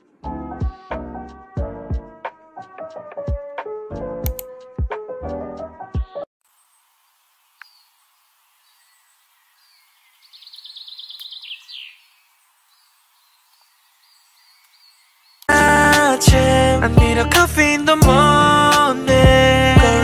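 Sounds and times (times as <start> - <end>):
faint bird chirps: 7.6 - 15.5
bird trill: 8.7 - 12.2
loud music: 15.5 - 20.0.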